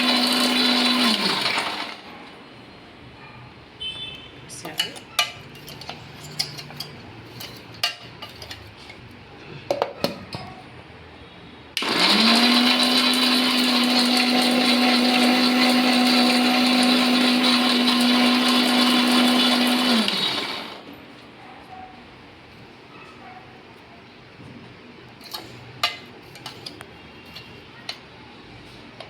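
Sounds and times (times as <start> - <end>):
mixer grinder motor whine: 0.0 - 2.1, 11.8 - 21.0.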